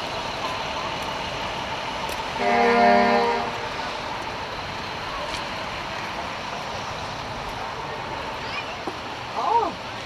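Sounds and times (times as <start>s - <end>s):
horn blast: 2.4s - 3.7s.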